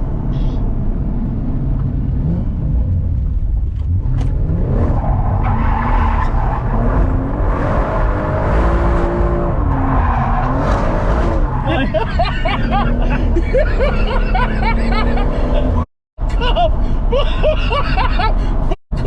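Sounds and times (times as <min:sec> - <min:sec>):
car engine revving: 0:01.9 - 0:15.9
tyres skidding: 0:02.2 - 0:16.7.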